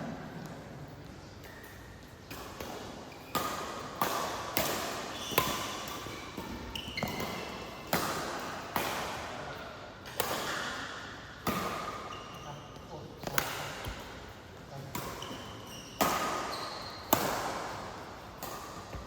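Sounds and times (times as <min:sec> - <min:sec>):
racket hitting shuttlecock: 0:01.5 - 0:09.3, 0:10.0 - 0:12.2, 0:14.9 - 0:19.0
shoe squeaks on court floor: 0:05.1 - 0:07.6, 0:15.2 - 0:17.1.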